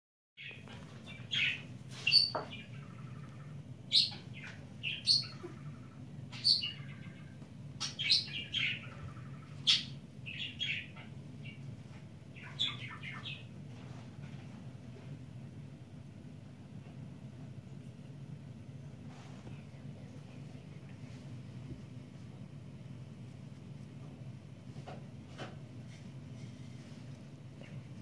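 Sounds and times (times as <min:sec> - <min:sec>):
small bird chirping: 0:00.4 - 0:11.7, 0:12.3 - 0:13.6
steady low hum: 0:00.4 - 0:28.0.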